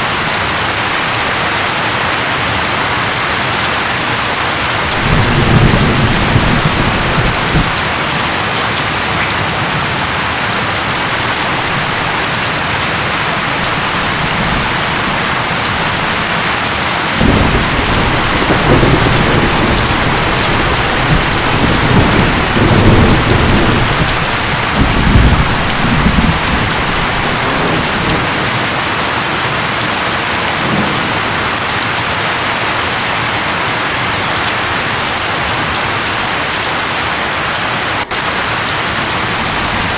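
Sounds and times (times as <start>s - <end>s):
rain hissing: 0.0s - 39.9s
thunder rumbling: 3.8s - 32.4s, 38.1s - 39.9s.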